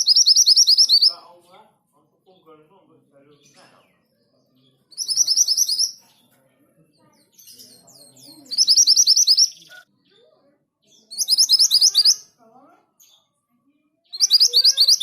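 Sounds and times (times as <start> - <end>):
bird singing high rising whistles: 0.0 - 1.1, 5.0 - 6.0, 8.4 - 9.8, 11.2 - 12.3, 14.2 - 15.0.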